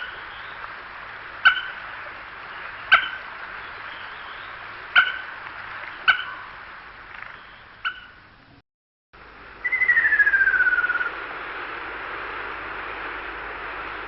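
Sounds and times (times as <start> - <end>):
sharp bird calls: 0.0 - 0.8, 1.4 - 8.2, 9.6 - 11.2.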